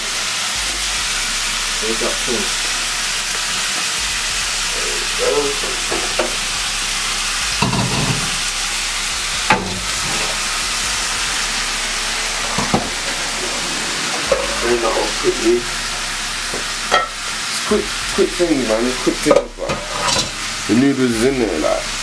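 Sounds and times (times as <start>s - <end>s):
vegetables sizzling in a wok: 0.0s - 22.0s
pots and pans knocking: 5.5s - 6.5s, 7.6s - 8.4s, 9.4s - 10.4s, 12.4s - 14.9s, 15.9s - 17.3s, 19.3s - 20.4s.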